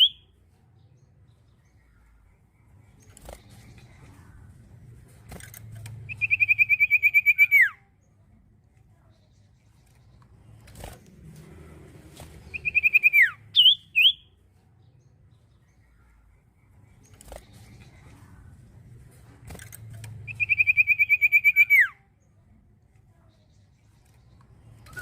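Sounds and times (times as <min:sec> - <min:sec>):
bird trilling: 0:00.0 - 0:00.3, 0:06.1 - 0:07.8, 0:12.5 - 0:14.3, 0:20.3 - 0:22.0.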